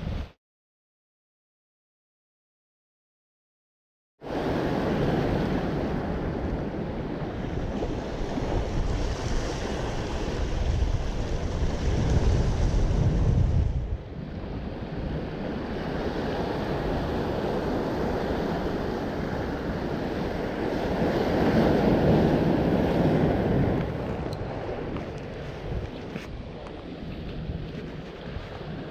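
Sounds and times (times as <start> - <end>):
wind buffeting microphone: 4.3 - 28.9
waves washing against rocks: 7.3 - 13.6, 15.2 - 28.9.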